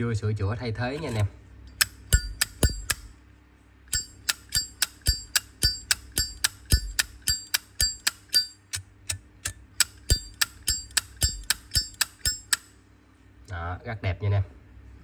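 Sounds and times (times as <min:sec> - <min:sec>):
lighter ringing ding: 0:03.9 - 0:08.6.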